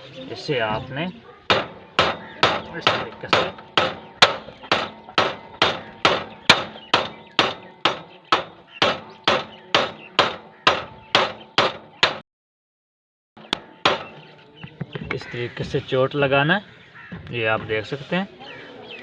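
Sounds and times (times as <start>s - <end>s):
hammer striking metal: 1.5s - 12.2s, 13.4s - 14.4s.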